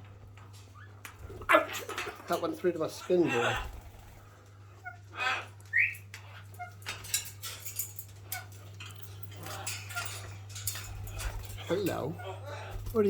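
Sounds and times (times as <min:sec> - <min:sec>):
steady low hum: 0:00.0 - 0:13.0
parrots chirping: 0:00.5 - 0:13.0
light clicks and scratches: 0:05.6 - 0:13.0.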